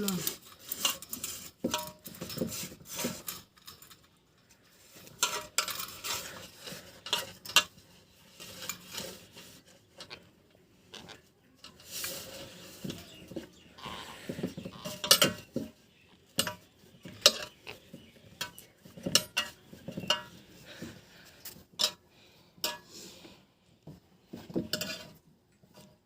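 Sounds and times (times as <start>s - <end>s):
small hard objects clinking: 0.0s - 9.3s, 11.6s - 20.6s.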